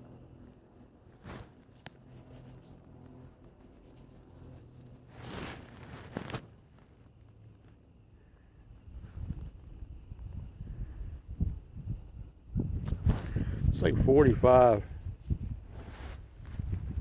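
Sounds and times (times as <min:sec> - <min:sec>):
faint low hum: 0:00.0 - 0:17.0
handling rubs on microphone: 0:00.4 - 0:07.8, 0:12.7 - 0:17.0.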